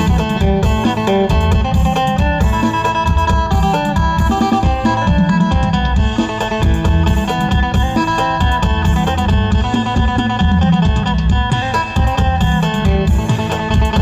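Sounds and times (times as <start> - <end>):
plucked lute notes: 0.0 - 14.0
pulsing bass beat: 0.0 - 14.0.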